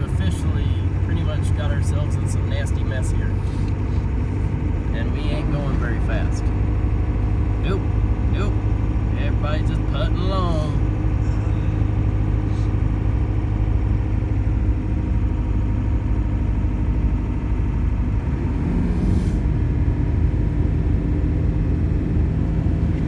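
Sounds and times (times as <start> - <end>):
diesel engine humming: 0.0 - 23.0.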